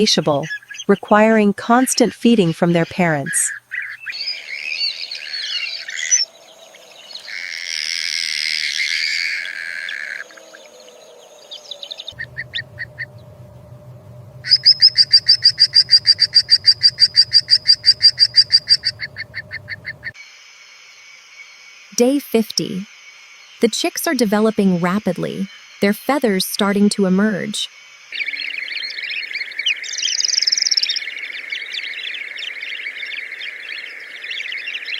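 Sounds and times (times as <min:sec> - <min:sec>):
birds chattering calls: 0:12.1 - 0:20.2
sharp repeated bird notes: 0:12.2 - 0:20.2
hoarse squealing bird call: 0:14.4 - 0:20.1.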